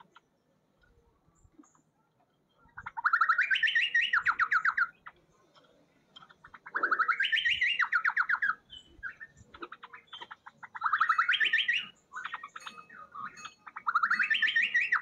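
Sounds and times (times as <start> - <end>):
faint bird chirps: 0.0 - 15.0
songbird trilling: 2.6 - 5.4, 6.2 - 15.0.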